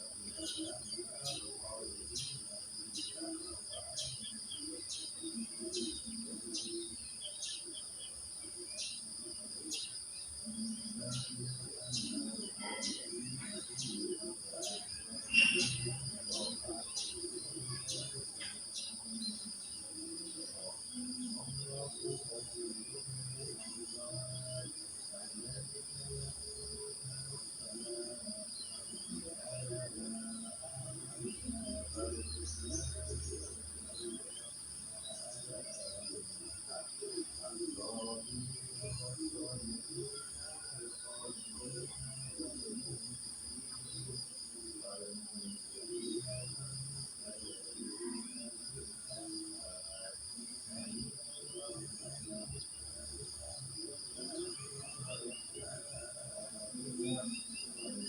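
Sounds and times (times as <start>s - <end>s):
crickets chirring: 0.0s - 58.0s
short bird chirps: 15.3s - 16.0s.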